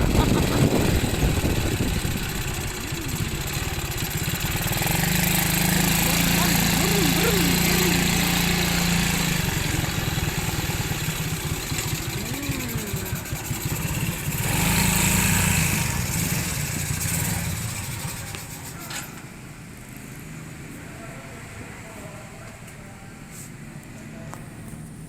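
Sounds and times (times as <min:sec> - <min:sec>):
motorcycle engine running: 0:00.0 - 0:18.9
road and wind noise: 0:00.0 - 0:22.6.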